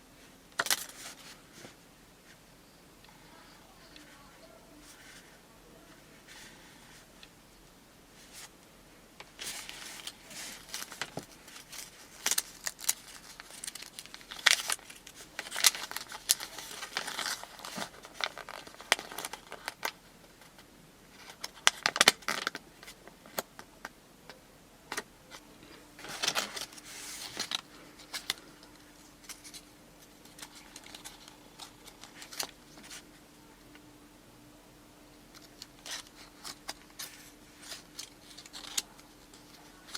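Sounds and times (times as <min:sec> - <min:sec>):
faint steady hum: 0:00.0 - 0:39.9
wrapper crinkling and clicks: 0:00.6 - 0:01.3, 0:09.3 - 0:20.6, 0:21.2 - 0:23.7, 0:26.0 - 0:33.0, 0:35.3 - 0:39.9.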